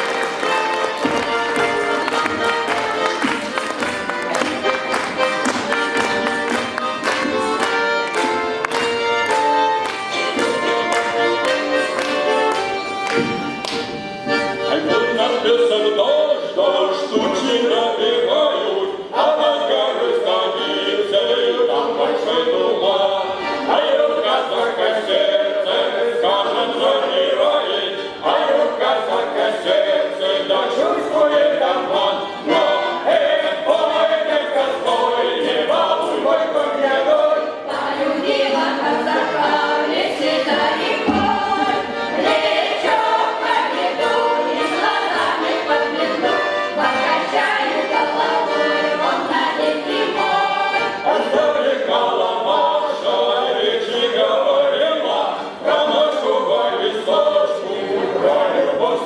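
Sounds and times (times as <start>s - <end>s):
ensemble singing together: 0.0s - 59.0s.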